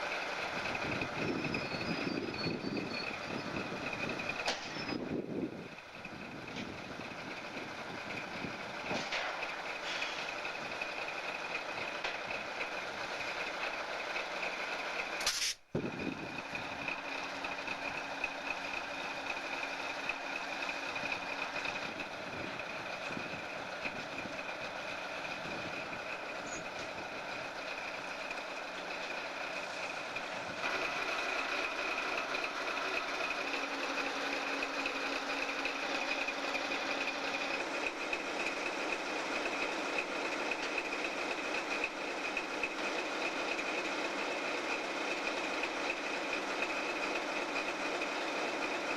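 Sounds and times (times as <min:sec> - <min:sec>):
train rolling along track: 0:00.0 - 0:48.9
sharp click: 0:15.2 - 0:15.6.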